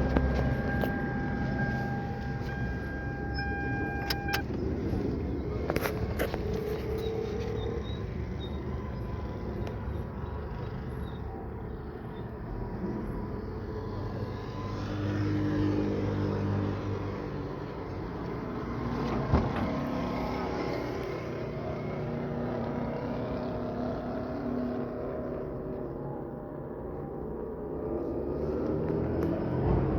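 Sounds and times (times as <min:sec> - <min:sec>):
car engine running: 0:00.0 - 0:09.7.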